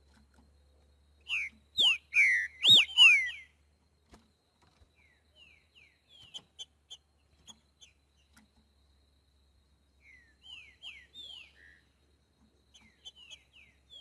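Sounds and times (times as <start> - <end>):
bird chirps: 0.4 - 3.8, 4.8 - 8.5, 9.9 - 14.0
bird singing whistled notes: 1.2 - 3.6, 5.0 - 8.3, 10.0 - 11.9, 12.7 - 14.0.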